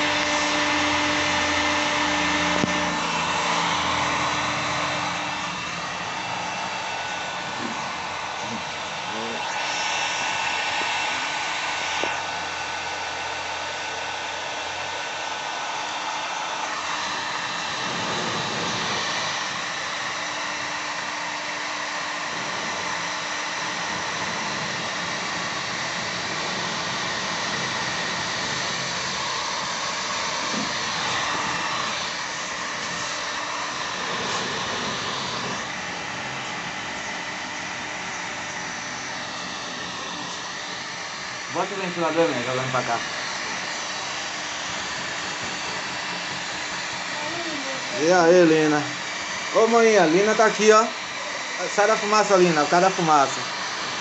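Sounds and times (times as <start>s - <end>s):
heat gun blowing: 0.0s - 54.0s.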